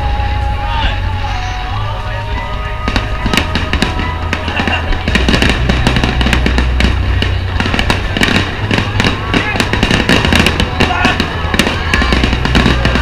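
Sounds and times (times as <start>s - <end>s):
deep rumble: 0.0s - 13.0s
loud music: 0.0s - 13.0s
fireworks cracking and popping: 2.2s - 13.0s.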